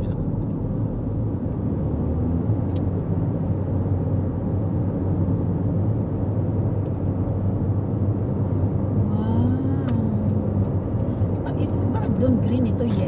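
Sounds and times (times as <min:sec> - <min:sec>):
road and tyre noise in car: 0:00.0 - 0:13.0.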